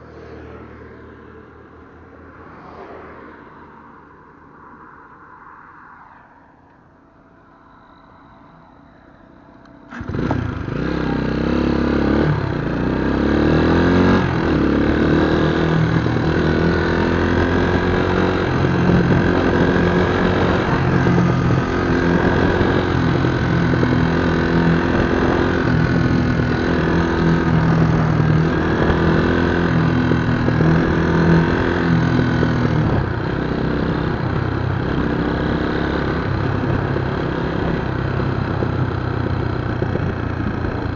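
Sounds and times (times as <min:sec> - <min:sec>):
motorcycle engine revving: 0:09.7 - 0:40.9.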